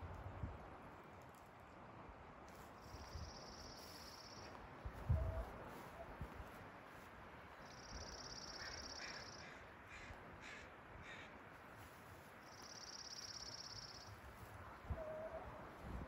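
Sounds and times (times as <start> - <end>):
faint short bird calls: 2.9 - 6.1, 7.6 - 11.4
bird trilling: 7.7 - 9.6.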